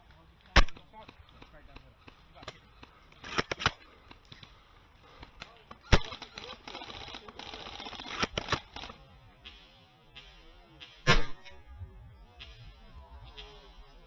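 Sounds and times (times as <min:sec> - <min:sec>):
airsoft rifle snap: 0:00.5 - 0:01.5, 0:11.1 - 0:11.6
quick rifle clicks: 0:00.5 - 0:09.0.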